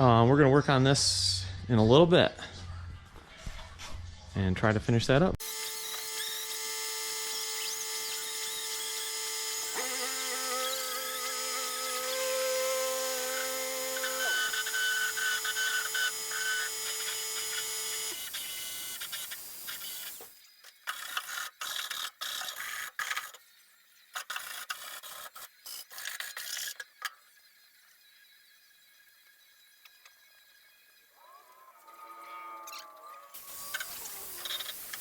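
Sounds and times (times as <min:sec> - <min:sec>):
high-speed power tool whining: 0:05.4 - 0:20.3, 0:33.3 - 0:35.0.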